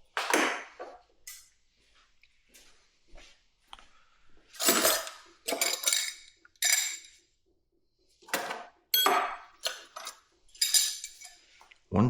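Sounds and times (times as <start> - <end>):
metal tools clanking: 4.6 - 7.2, 8.3 - 11.4.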